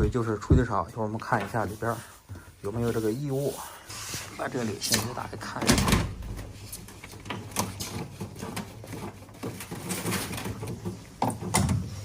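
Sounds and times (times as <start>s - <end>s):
washing machine clicks and knocks: 5.0s - 6.6s, 7.2s - 12.0s.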